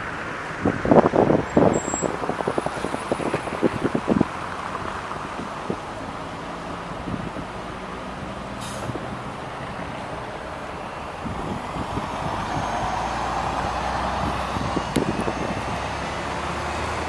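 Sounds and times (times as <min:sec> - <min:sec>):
bus diesel engine running: 0:00.0 - 0:17.0
pneumatic air hiss: 0:08.6 - 0:09.0.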